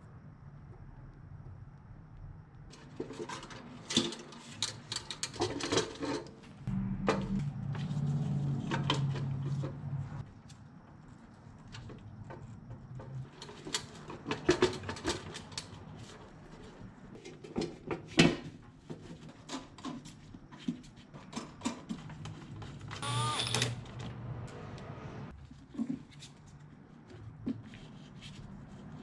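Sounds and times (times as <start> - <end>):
short squeak: 23.0 - 23.9.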